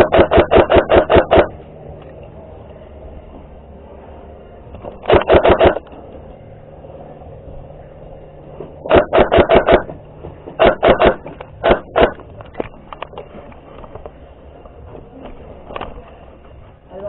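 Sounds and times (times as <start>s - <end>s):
airsoft gun firing: 0.0s - 1.6s, 5.0s - 5.9s, 8.8s - 10.0s, 10.6s - 12.3s.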